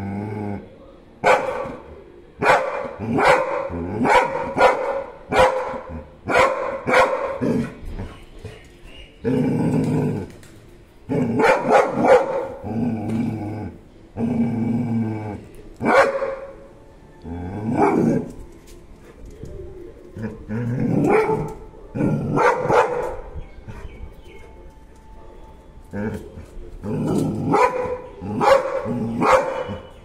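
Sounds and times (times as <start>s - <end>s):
dog growling: 0.0s - 0.8s, 2.8s - 4.6s, 7.3s - 10.4s, 11.1s - 16.5s, 17.2s - 18.5s, 20.0s - 24.0s, 25.9s - 29.9s
dog barking: 1.2s - 8.2s, 11.3s - 12.6s, 15.8s - 16.6s, 17.8s - 18.1s, 21.0s - 23.9s, 27.4s - 29.9s.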